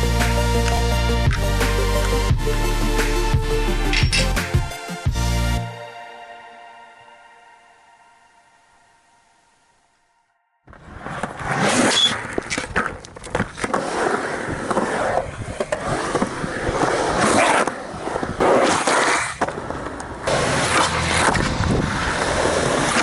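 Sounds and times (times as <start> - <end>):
skateboard rolling over pavement: 10.7 - 23.0.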